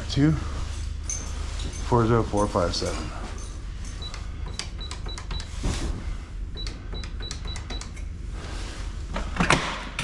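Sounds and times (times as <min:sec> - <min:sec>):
keypad beeping: 0:06.6 - 0:07.9.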